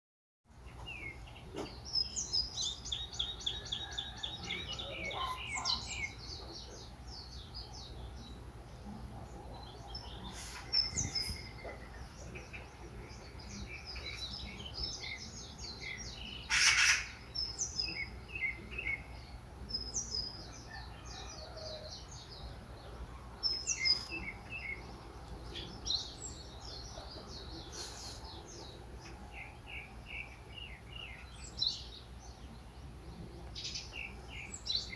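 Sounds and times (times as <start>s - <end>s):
small birds chirping: 0.5s - 34.9s
harsh bird call: 16.4s - 17.2s.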